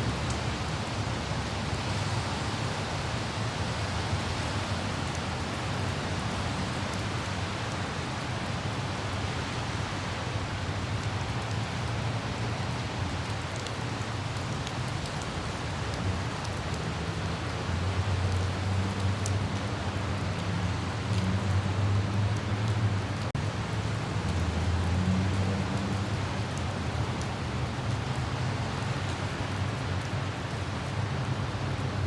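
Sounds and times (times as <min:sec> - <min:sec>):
light rain hiss: 0:00.0 - 0:32.0
low rumble of traffic: 0:00.0 - 0:32.0.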